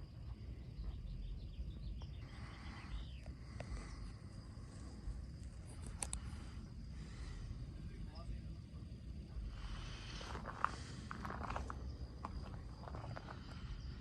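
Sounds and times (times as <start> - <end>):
insect trill: 0.0 - 14.0
bird chirps: 0.6 - 4.0
low rumble: 3.4 - 14.0
sharp clicks: 5.8 - 6.3.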